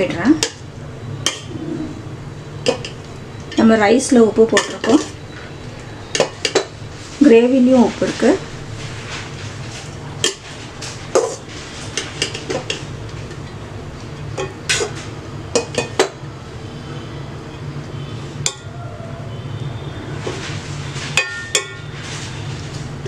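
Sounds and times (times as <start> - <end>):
steady low hum: 0.0 - 20.1
metal spoon clinking on cooking pot: 4.5 - 5.1, 18.4 - 18.7, 21.2 - 21.8.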